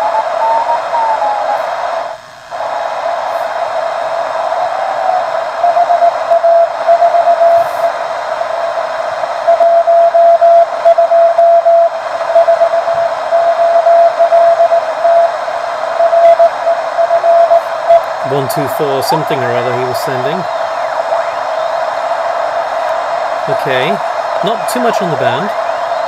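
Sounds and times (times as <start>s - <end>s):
radio band hiss: 0.0s - 26.0s
morse code tone: 16.0s - 21.8s, 23.5s - 26.0s.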